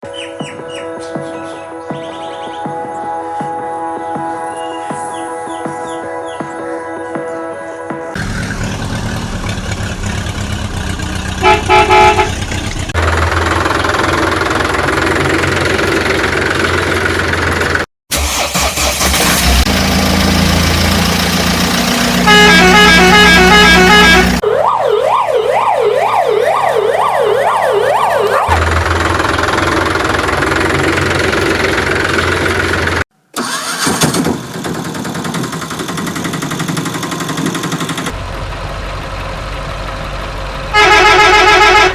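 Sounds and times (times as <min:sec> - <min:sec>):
heavy engine running: 0:08.2 - 0:24.4, 0:28.5 - 0:41.9
vehicle horn honking: 0:11.4 - 0:12.4, 0:22.2 - 0:24.4, 0:40.7 - 0:41.9
siren wailing: 0:22.2 - 0:28.8.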